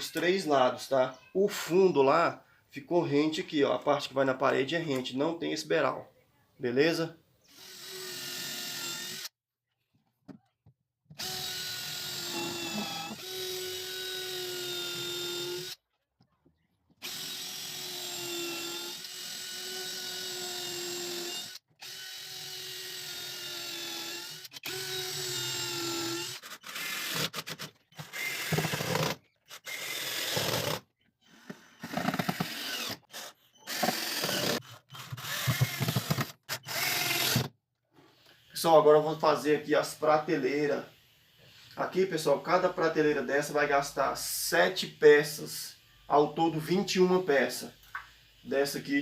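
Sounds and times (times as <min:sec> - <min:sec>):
electric drill-driver whining: 0:07.5 - 0:09.4, 0:11.2 - 0:15.8, 0:17.0 - 0:37.5.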